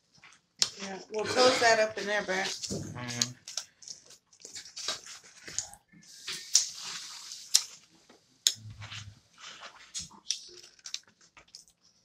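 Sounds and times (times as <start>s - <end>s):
wet chewing and mouth clicks: 0.2s - 0.8s, 2.5s - 12.0s
foil wrapper crinkling: 9.4s - 11.9s.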